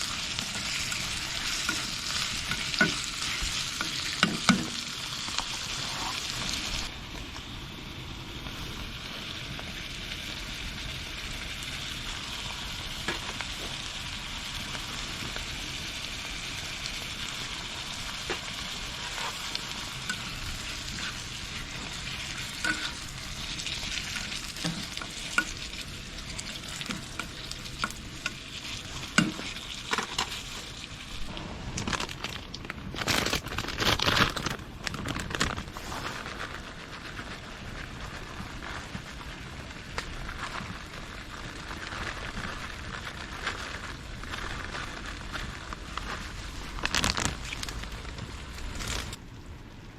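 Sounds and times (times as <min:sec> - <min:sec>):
food sizzling in a pan: 0:00.0 - 0:31.4.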